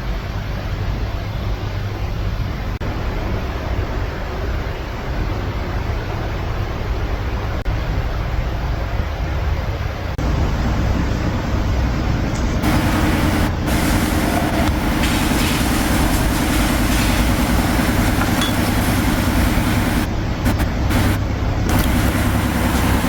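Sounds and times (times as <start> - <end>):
machine low drone: 10.2 - 23.0
rhythmic low throb with hiss: 12.6 - 23.0.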